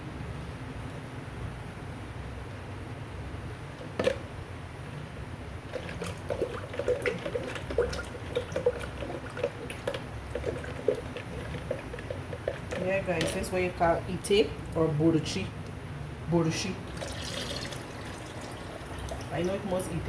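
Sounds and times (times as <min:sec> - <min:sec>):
liquid splashing in a bowl: 0:05.7 - 0:13.4, 0:16.9 - 0:19.5.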